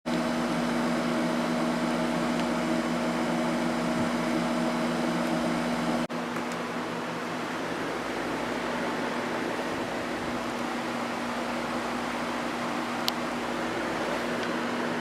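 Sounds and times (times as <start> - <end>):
air conditioner fan rush: 0.1 - 15.0.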